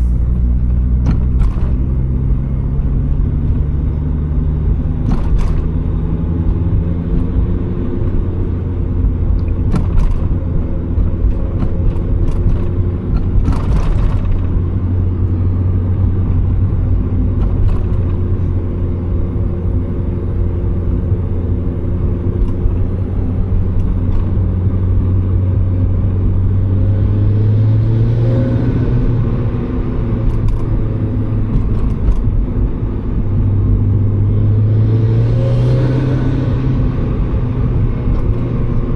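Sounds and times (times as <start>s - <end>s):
car engine droning: 0.0s - 38.9s
road noise: 0.0s - 38.9s.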